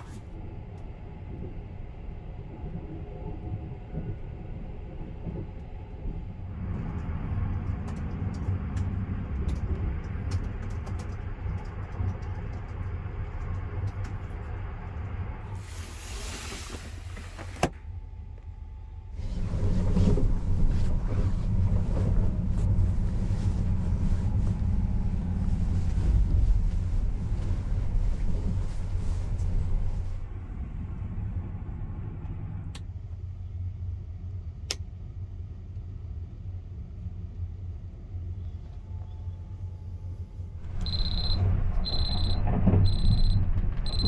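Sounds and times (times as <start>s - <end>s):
train running low rumble: 0.0s - 44.0s
hiss: 15.6s - 17.5s
laptop keys typing: 40.8s - 44.0s.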